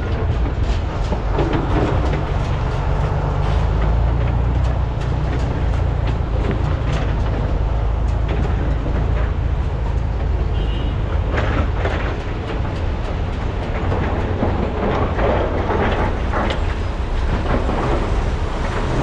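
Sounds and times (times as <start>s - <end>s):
excavator diesel engines running: 0.0s - 19.0s
rock and metal clatter: 0.0s - 19.0s.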